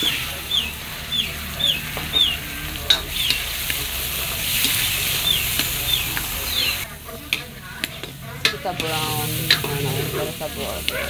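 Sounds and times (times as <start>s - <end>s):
bird cheeping: 0.0s - 2.4s
chicken sizzling in hot oil: 0.0s - 11.0s
wooden spatula scraping wok: 0.0s - 11.0s.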